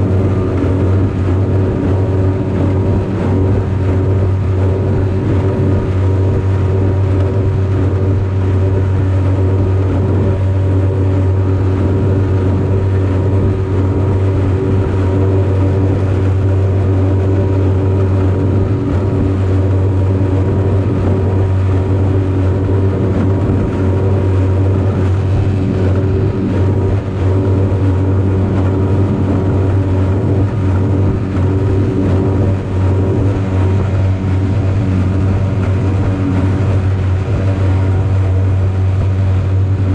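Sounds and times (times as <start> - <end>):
outboard motor droning: 0.0 - 39.9.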